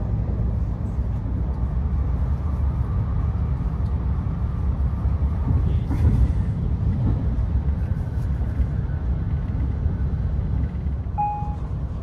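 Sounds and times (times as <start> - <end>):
train wheels rumbling on track: 0.0 - 12.0
electronic beep: 11.2 - 11.6.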